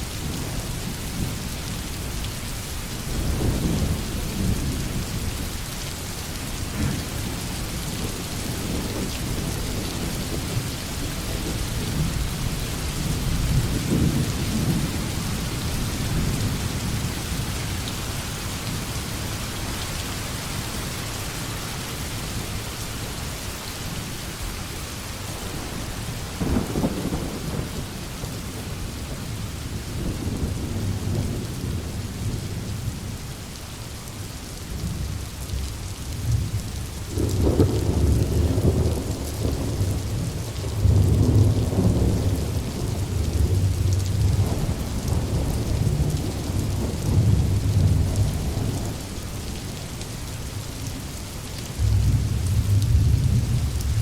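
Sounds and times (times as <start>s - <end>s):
heavy rain falling: 0.0s - 54.0s
thunder rolling: 51.8s - 54.0s.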